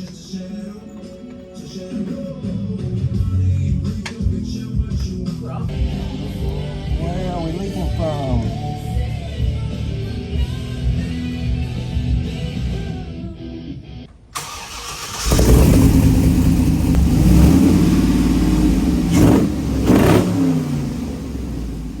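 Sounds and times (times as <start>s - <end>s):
background music: 0.0s - 14.1s
loud car engine revving: 14.4s - 22.0s.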